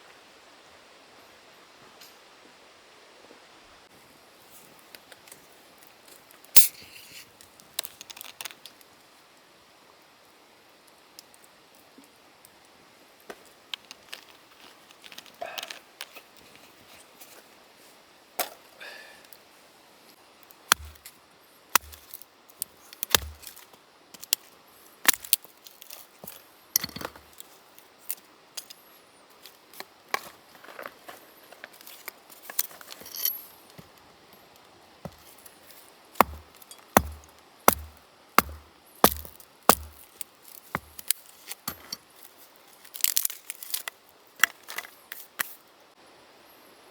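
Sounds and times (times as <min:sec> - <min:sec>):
firewood splitting knocks: 0:20.7 - 0:21.1, 0:21.8 - 0:22.2, 0:23.1 - 0:23.6, 0:36.2 - 0:40.2, 0:40.8 - 0:42.0.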